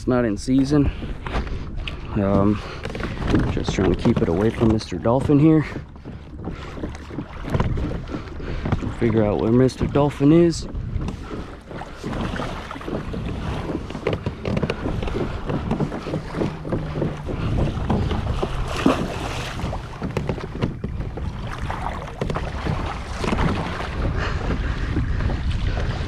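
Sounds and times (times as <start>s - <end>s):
wind on microphone: 0.0s - 26.0s
water sloshing around kayak: 0.1s - 26.0s
short knocks and clicks: 12.8s - 23.7s.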